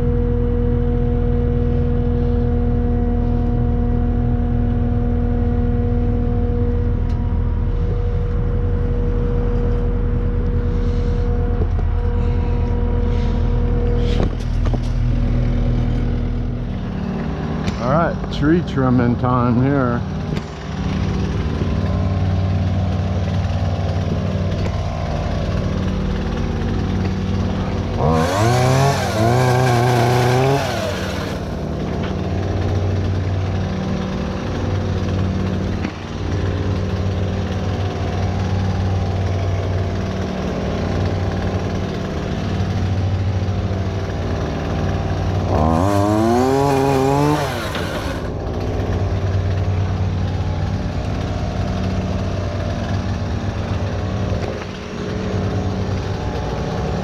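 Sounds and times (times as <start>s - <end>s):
engine idling: 0.0s - 57.0s
chainsaw revving and cutting: 18.7s - 57.0s.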